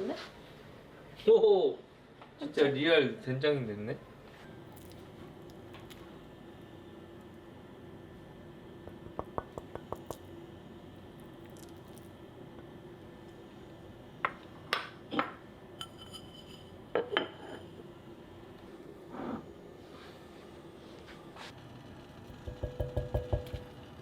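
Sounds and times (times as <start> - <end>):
steady low hum: 4.0 - 24.0
dishes clinking and knocking: 8.9 - 10.2, 14.3 - 17.7, 22.4 - 23.7.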